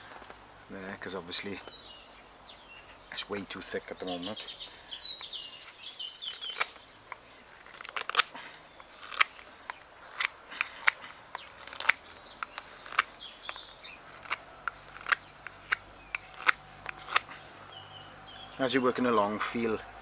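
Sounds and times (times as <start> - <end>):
knife cutting into wood: 6.3 - 17.6.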